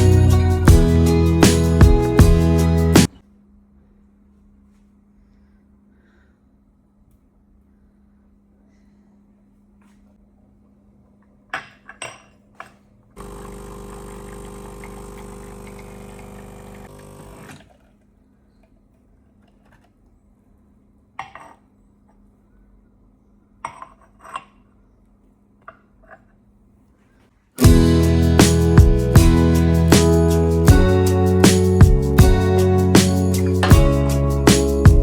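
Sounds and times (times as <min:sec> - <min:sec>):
small electric appliance running: 0:13.2 - 0:17.6.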